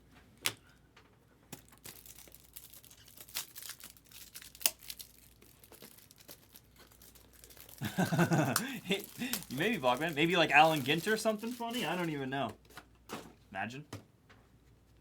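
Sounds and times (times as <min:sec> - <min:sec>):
plastic wrapping crinkling: 0:01.5 - 0:12.5.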